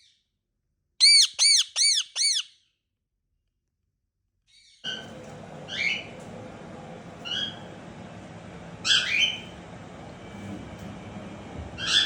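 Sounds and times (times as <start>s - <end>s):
parakeet squawking: 1.0s - 2.6s, 8.8s - 9.5s, 11.8s - 12.0s.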